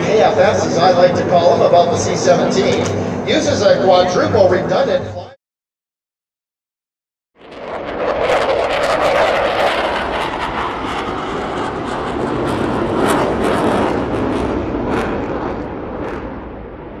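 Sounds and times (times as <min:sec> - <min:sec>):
jet engine roar with crackles: 0:00.0 - 0:04.9, 0:07.4 - 0:17.0.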